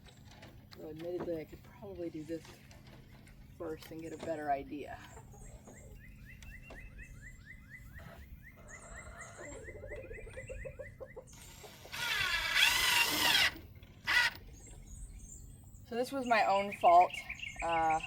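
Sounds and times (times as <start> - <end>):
cordless drill motor whine: 11.3 - 14.4.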